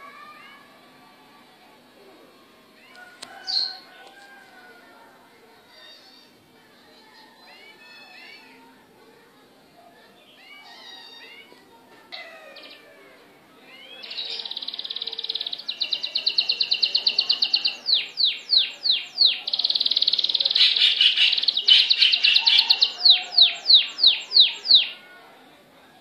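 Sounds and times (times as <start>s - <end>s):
songbird trilling: 13.7s - 25.0s.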